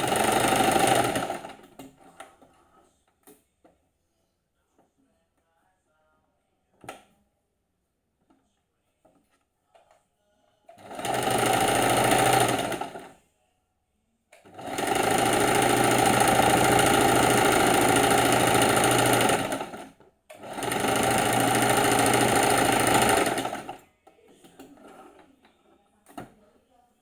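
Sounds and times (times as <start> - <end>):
sewing machine stitching: 0.0 - 2.6, 10.7 - 13.2, 14.4 - 23.8, 24.5 - 25.3.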